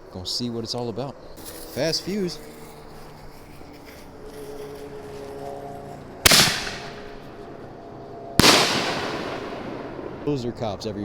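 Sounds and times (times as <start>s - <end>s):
firework shell launch boom: 6.3s - 7.2s, 8.4s - 10.0s.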